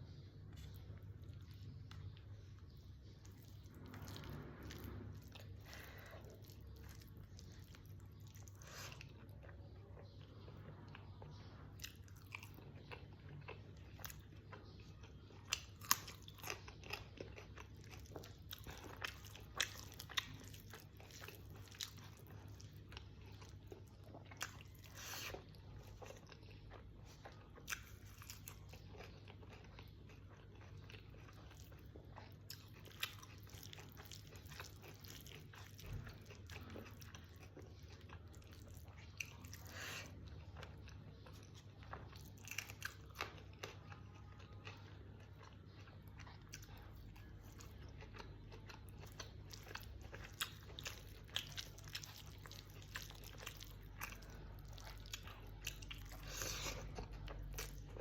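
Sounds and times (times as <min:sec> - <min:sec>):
faint low hum: 0:00.0 - 0:58.0
chewing and biting: 0:00.1 - 0:58.0.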